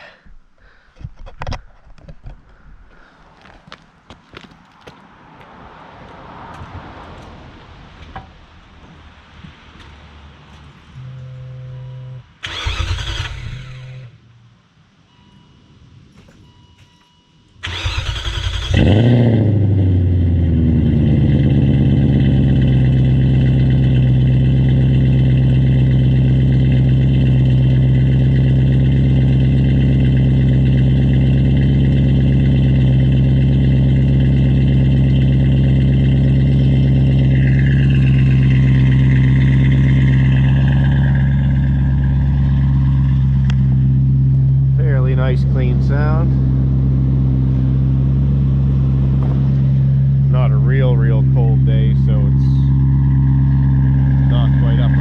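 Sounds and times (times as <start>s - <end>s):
car engine cranking and idling: 6.4s - 14.5s, 17.5s - 55.0s.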